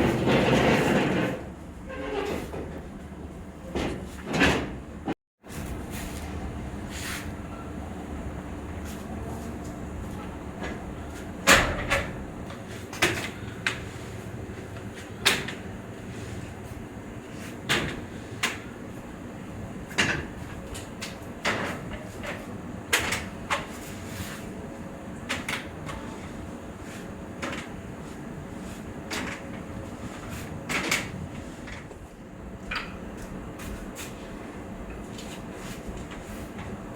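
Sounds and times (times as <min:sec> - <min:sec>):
steady machine hum: 0:04.8 - 0:21.5.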